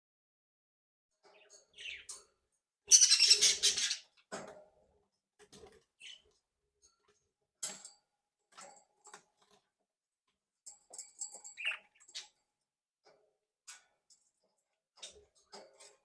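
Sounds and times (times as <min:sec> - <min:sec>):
budgerigars chirping and clicking: 0:01.2 - 0:02.3, 0:02.9 - 0:04.4, 0:06.0 - 0:06.4, 0:11.0 - 0:12.4.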